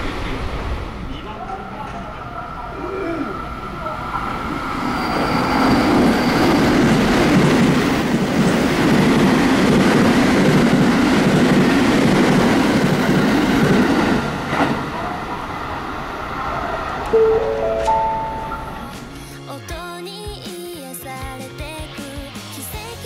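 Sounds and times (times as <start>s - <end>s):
train wheels rumbling on rails: 4.0s - 17.2s.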